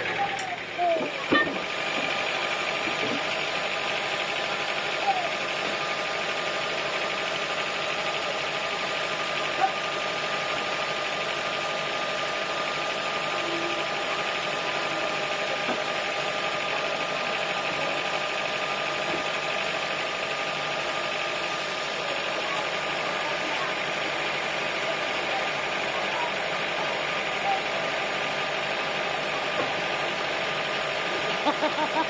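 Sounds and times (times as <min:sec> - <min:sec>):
sawmill engine droning: 0:00.0 - 0:32.0.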